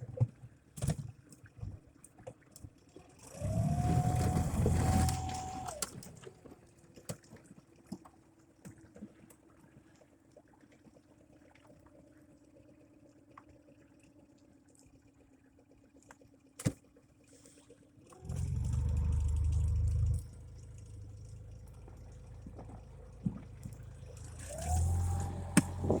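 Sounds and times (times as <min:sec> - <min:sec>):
boat motor running: 0:03.3 - 0:05.8, 0:18.2 - 0:26.0.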